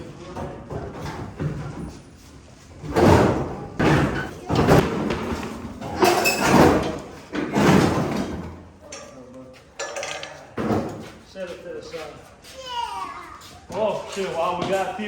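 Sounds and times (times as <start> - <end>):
heavy thumps and bangs: 2.9 - 8.5.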